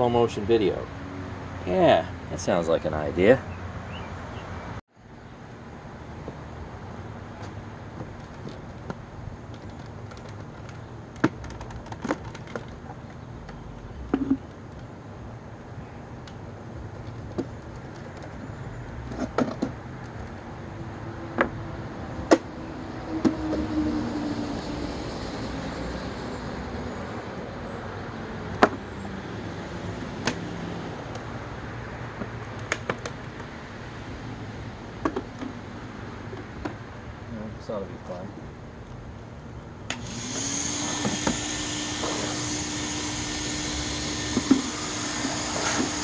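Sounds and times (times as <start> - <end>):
vehicle passing: 0.0 - 4.8, 20.6 - 32.2
outdoor background noise: 0.0 - 46.0.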